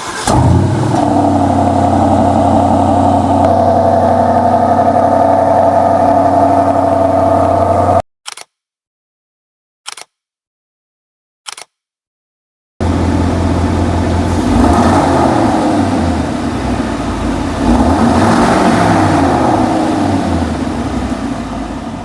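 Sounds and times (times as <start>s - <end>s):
car engine starting and revving: 0.0s - 8.0s, 12.8s - 22.0s.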